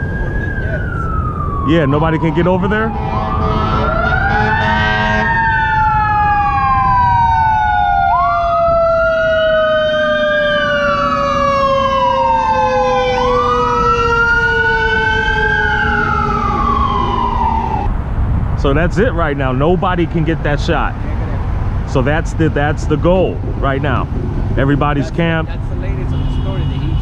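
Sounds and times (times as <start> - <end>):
steady siren tone falling in pitch: 0.0 - 17.9
wailing siren: 0.0 - 17.9.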